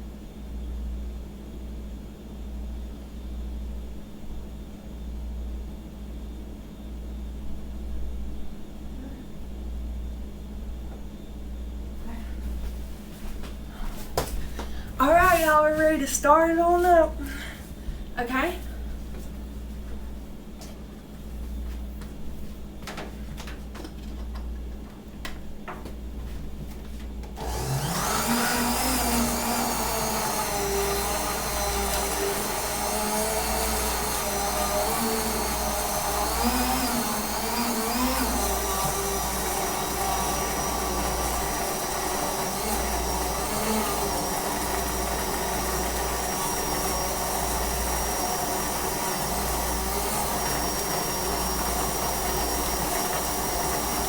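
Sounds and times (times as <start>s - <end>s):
electric mixer motor running: 27.4s - 54.0s.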